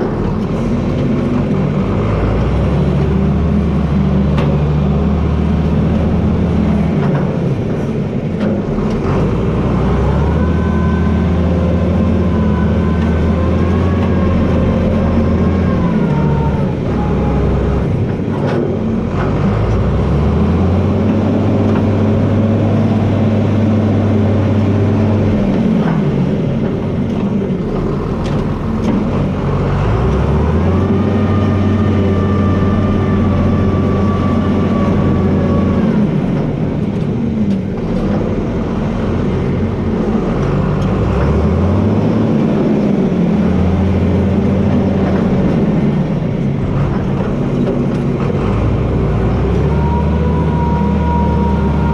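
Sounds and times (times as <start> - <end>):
tractor diesel engine running: 0.0 - 51.9
high whine: 27.6 - 29.8.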